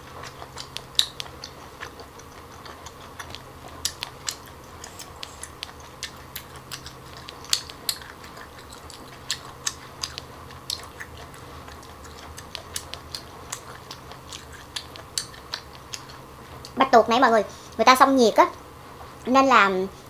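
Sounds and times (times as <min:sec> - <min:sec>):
mouth clicks and smacks: 0:00.0 - 0:16.8
person chewing: 0:00.0 - 0:16.8.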